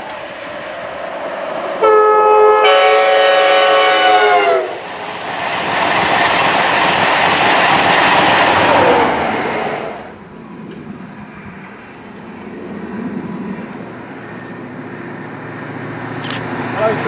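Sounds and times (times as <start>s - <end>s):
train rushing past: 0.0s - 17.0s
train two-tone horn: 1.8s - 4.8s.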